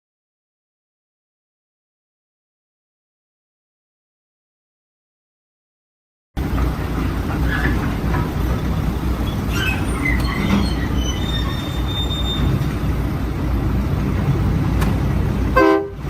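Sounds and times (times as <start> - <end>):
moving vehicle rumble: 6.4 - 16.0
faint high squeals: 9.2 - 12.7.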